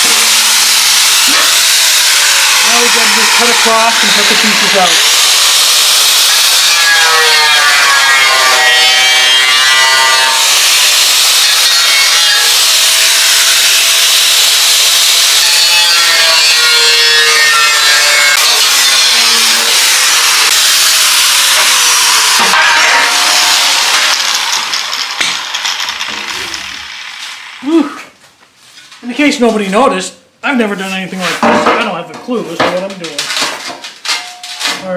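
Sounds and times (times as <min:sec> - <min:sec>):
power tool cutting steel: 0:00.0 - 0:27.8.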